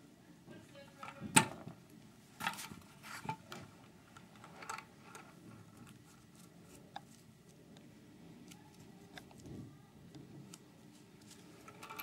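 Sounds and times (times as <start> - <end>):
clicks and rustles of small parts: 2.4 - 7.6, 10.4 - 12.0.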